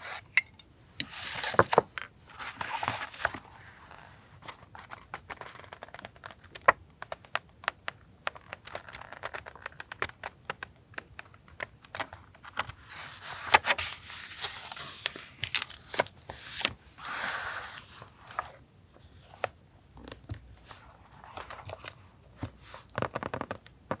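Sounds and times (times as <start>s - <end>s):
paper crinkling and tearing: 13.0s - 18.4s.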